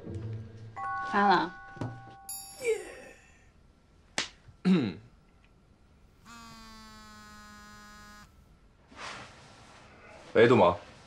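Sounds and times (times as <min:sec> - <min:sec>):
mobile phone buzzing: 0:06.2 - 0:08.5.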